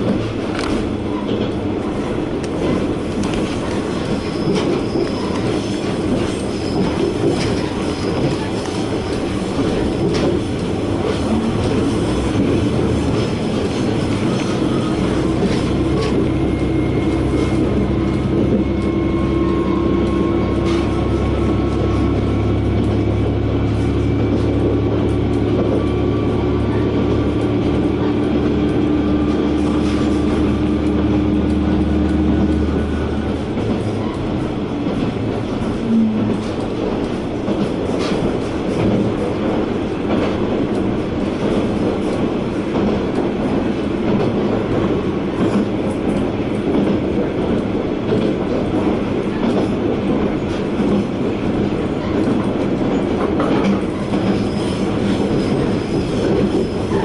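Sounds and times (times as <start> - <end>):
rail-joint clicks: 0.0 - 57.0
railcar engine rumble: 0.0 - 57.0
wheel squeal: 4.0 - 8.2, 54.2 - 57.0.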